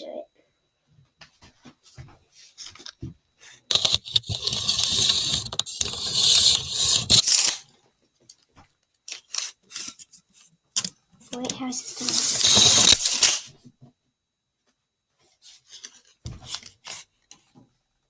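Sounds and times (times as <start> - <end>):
tape measure blade drawn out: 3.7 - 7.6, 12.0 - 13.5.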